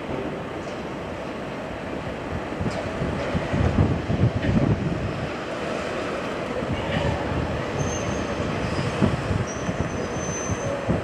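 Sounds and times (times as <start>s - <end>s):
train wheels rumbling on rails: 0.0s - 11.0s
high-pitched wheel squeal: 7.7s - 10.9s.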